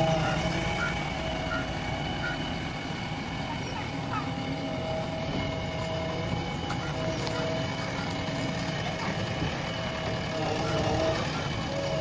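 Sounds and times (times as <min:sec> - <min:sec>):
diesel engine running: 0:00.0 - 0:12.0
faint steady tones: 0:00.0 - 0:12.0.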